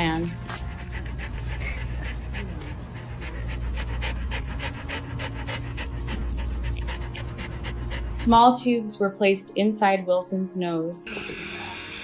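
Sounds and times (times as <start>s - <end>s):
dog panting: 0.0s - 8.6s
low steady hum: 0.0s - 8.6s.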